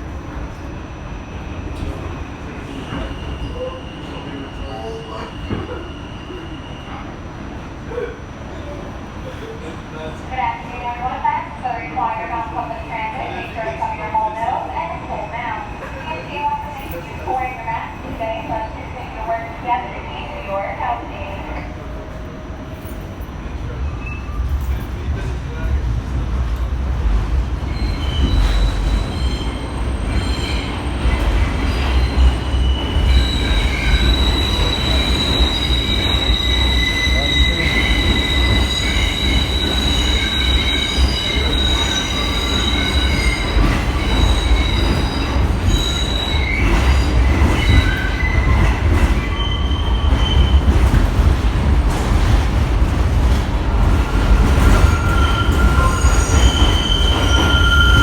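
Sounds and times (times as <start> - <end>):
subway train rumbling on rails: 0.0 - 58.0
train wheels squealing: 1.3 - 7.1, 23.9 - 25.1, 27.7 - 51.0, 54.0 - 58.0.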